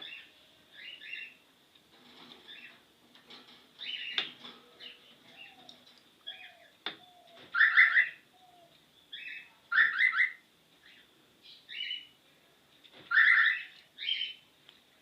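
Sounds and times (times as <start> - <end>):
cockatiel chirping: 7.6 - 8.2, 9.2 - 10.4, 13.1 - 14.4.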